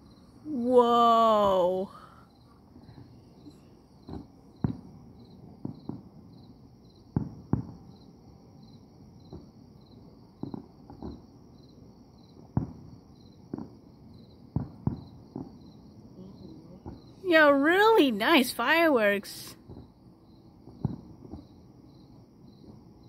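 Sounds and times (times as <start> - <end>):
crickets chirping: 0.0 - 23.0
distant fireworks bangs: 2.9 - 8.0, 9.2 - 11.4, 12.3 - 18.4, 19.4 - 21.7.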